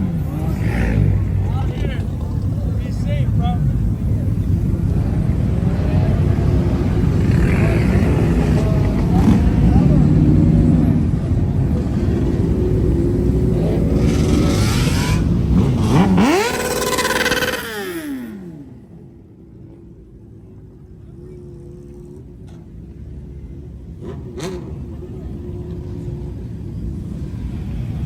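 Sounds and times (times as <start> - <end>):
car engine revving: 0.0 - 19.2, 21.0 - 28.0.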